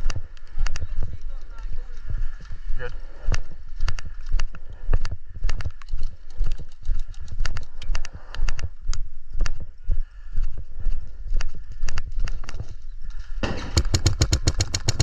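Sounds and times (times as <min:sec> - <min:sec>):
heavy footsteps on hard ground: 0:00.0 - 0:06.8.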